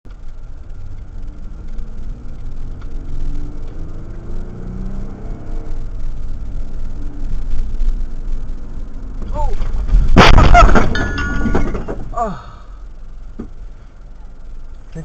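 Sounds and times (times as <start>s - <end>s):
vehicle engine and road rumble: 0.0s - 15.0s
faint wavering engine tone: 0.1s - 9.9s.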